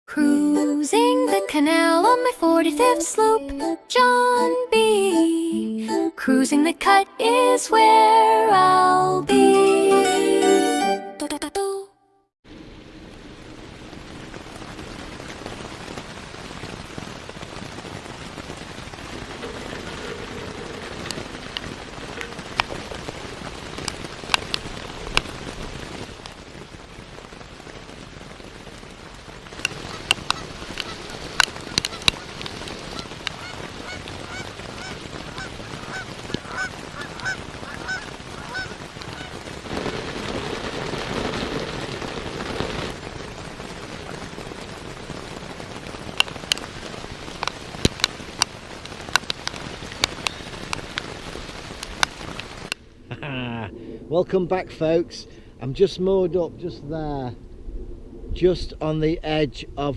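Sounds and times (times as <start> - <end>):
steady hiss: 12.5 - 59.9
geese honking: 19.1 - 24.2, 29.6 - 39.5
sharp clicks: 29.6 - 32.2.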